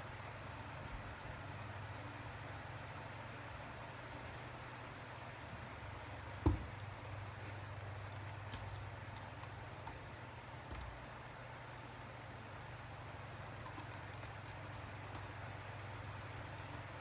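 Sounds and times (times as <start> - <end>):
steady low hum: 0.0 - 17.0
dull thump: 6.4 - 6.7.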